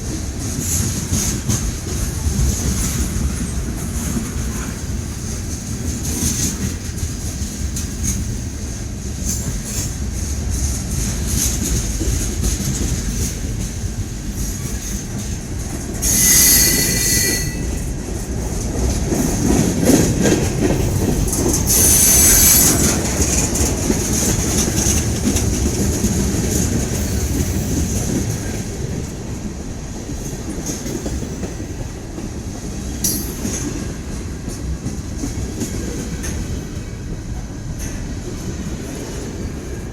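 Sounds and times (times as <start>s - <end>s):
train cars rumbling on rails: 0.0s - 39.9s
wheel squealing: 16.0s - 17.8s, 20.9s - 23.4s.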